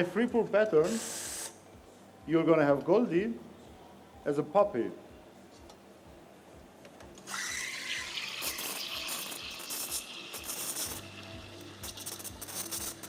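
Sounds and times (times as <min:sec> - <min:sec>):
espresso steam wand hissing: 0:00.8 - 0:01.6, 0:07.3 - 0:13.0.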